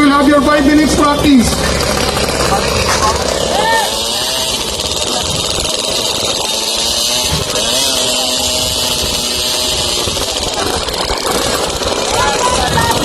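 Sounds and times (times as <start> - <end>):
motorbike engines revving: 0.0 - 13.0.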